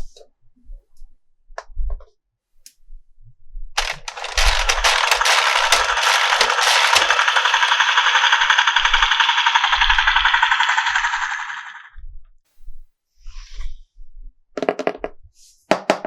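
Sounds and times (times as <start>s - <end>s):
plastic toy clicks and thumps: 3.8s - 11.8s
toy speaker crackling effect: 3.8s - 11.9s.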